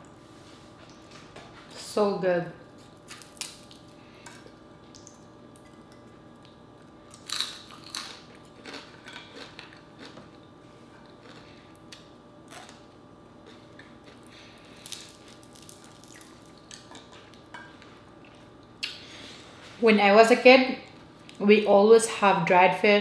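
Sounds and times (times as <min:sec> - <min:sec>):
chewing and crunching: 0:02.9 - 0:19.0.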